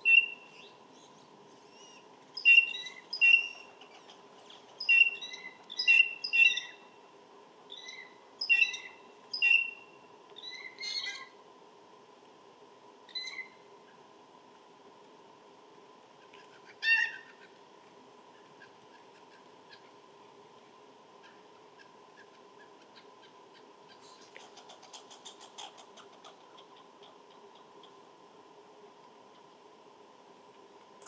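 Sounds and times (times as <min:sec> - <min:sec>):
faint bird ticks: 0:21.2 - 0:28.0.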